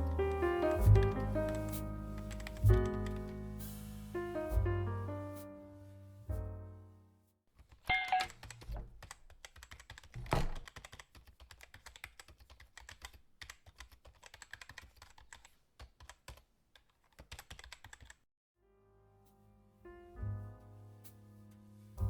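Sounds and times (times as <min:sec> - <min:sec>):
soft music: 0:00.0 - 0:07.3, 0:18.6 - 0:22.0.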